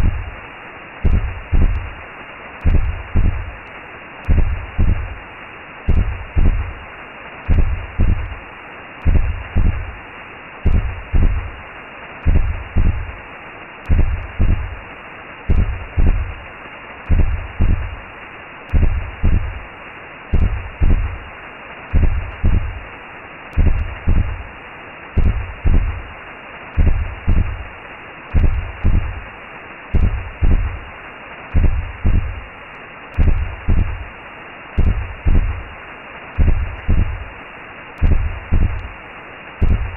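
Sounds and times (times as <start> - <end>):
low double-thump heartbeat: 0.0 - 0.4, 1.0 - 2.0, 2.6 - 3.6, 4.2 - 5.2, 5.9 - 6.8, 7.5 - 8.4, 9.0 - 10.0, 10.6 - 11.6, 12.2 - 13.2, 13.8 - 14.8, 15.5 - 16.4, 17.1 - 18.0, 18.7 - 19.7, 20.3 - 21.3, 21.9 - 22.9, 23.5 - 24.5, 25.2 - 26.1, 26.8 - 27.7, 28.3 - 29.3, 29.9 - 30.9, 31.5 - 32.5, 33.2 - 34.1, 34.8 - 35.7, 36.4 - 37.4, 38.0 - 39.0, 39.6 - 39.9
muffled whooshing hiss: 0.0 - 39.9.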